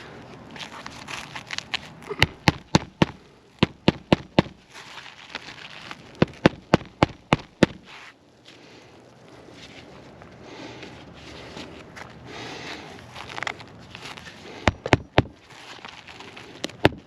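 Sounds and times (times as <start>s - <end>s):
shingles scraping and rustling: 0.6s - 8.6s, 12.7s - 17.0s
hammer striking roofing nails: 2.2s - 4.6s, 6.2s - 7.9s, 14.6s - 15.4s, 16.6s - 17.0s.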